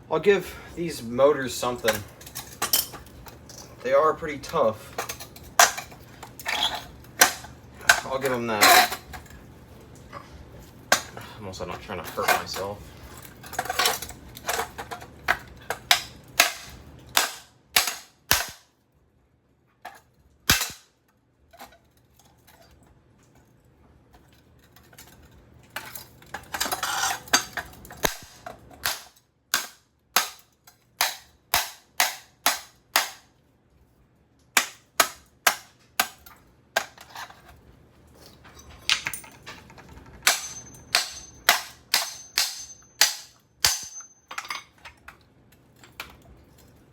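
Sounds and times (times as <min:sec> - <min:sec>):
sharp blows on metal housing: 0:16.4 - 0:18.6, 0:40.2 - 0:44.1.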